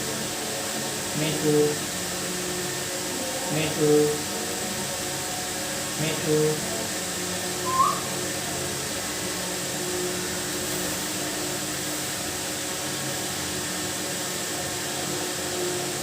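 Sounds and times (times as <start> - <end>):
parrot chirp: 7.6 - 8.2.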